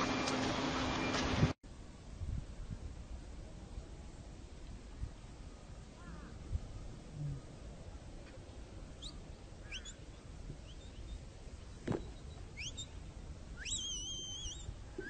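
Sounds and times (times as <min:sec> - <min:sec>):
birds chirping: 0:05.9 - 0:15.0.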